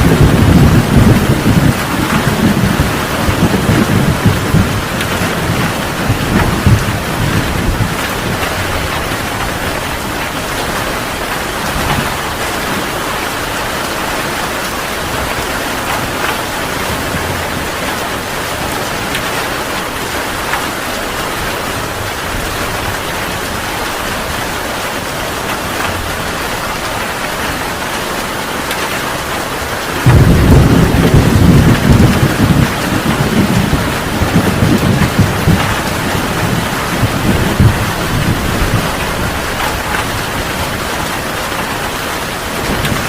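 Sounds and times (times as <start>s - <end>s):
rolling thunder: 0.0s - 12.8s, 30.0s - 41.2s
heavy rain falling: 0.0s - 43.0s.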